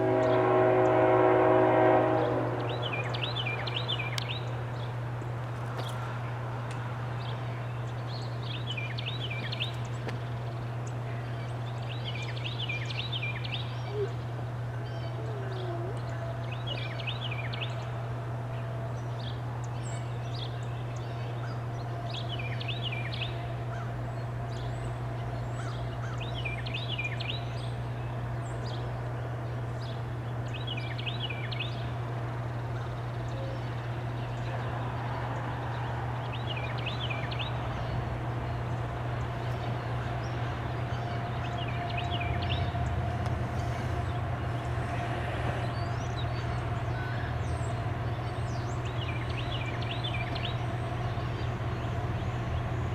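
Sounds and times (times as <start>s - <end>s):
bird chirping: 7.2s - 17.9s, 45.7s - 52.9s.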